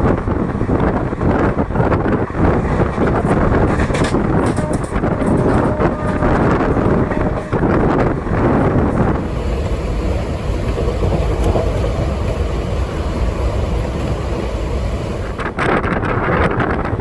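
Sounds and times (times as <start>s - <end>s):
train rumbling along the line: 0.0s - 17.0s.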